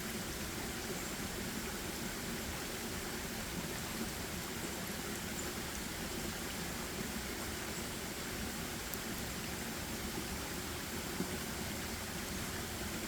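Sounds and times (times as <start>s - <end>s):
forest ambience hiss: 0.0s - 13.0s.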